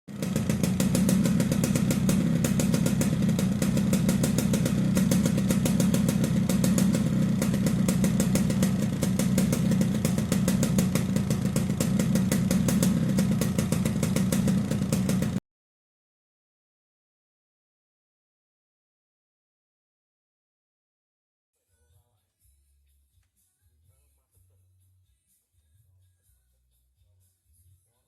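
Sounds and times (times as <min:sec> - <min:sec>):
motorcycle engine raspy growl: 0:00.1 - 0:15.4.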